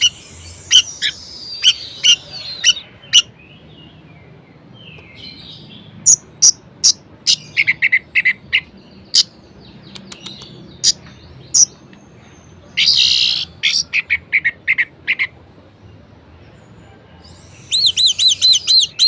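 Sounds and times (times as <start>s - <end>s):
thrush singing high chirps: 0.0s - 4.0s, 17.2s - 19.0s.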